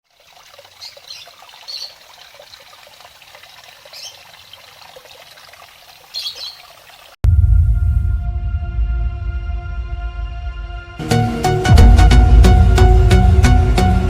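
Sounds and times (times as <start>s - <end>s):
bright water splashes: 0.0s - 7.2s
water pouring and trickling: 0.0s - 7.2s.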